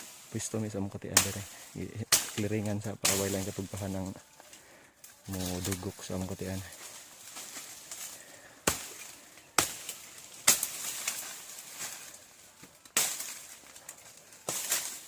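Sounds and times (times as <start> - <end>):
blade chopping through brush: 1.1 - 3.9, 7.4 - 12.2, 12.9 - 13.6, 14.4 - 15.0.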